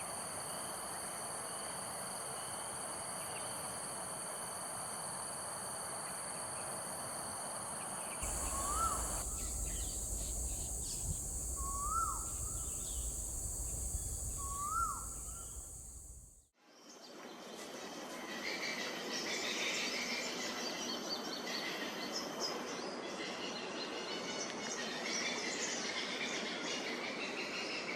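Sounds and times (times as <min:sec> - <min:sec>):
high insect drone: 0:07.1 - 0:16.5
bird whistling: 0:08.2 - 0:16.1
low wind rumble: 0:08.2 - 0:16.4.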